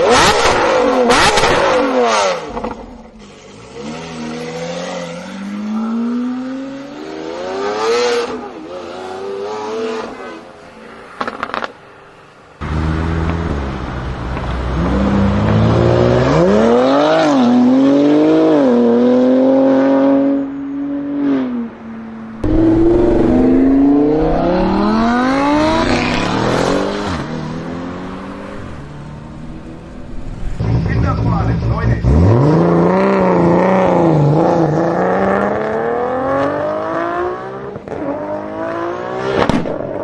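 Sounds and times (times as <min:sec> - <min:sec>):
car engine accelerating hard: 0:22.4 - 0:39.5.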